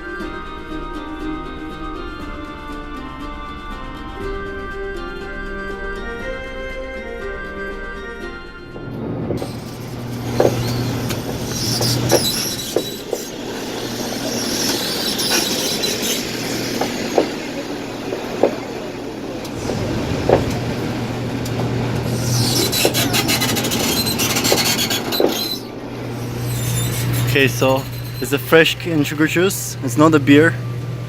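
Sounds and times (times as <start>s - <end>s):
motor hum: 8.6s - 31.0s
rollers squealing and rubbing: 8.9s - 29.7s.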